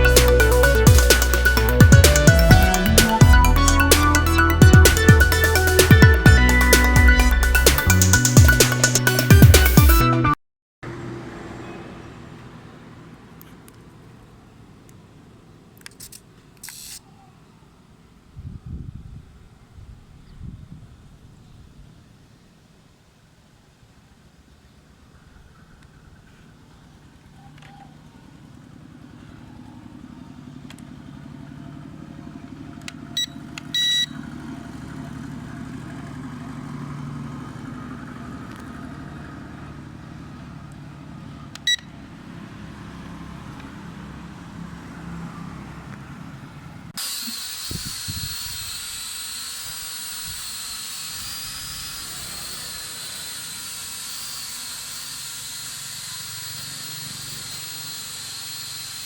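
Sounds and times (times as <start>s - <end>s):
propellers hissing: 0.0s - 10.0s, 46.3s - 59.0s
drone motors whining: 0.0s - 10.1s, 27.6s - 41.9s, 46.4s - 59.0s
short electronic beeps: 33.2s - 34.2s, 41.7s - 41.9s.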